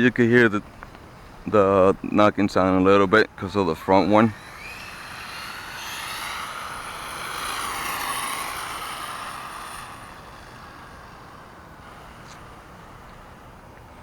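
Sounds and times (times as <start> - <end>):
small two-stroke engine revving: 3.6 - 13.6.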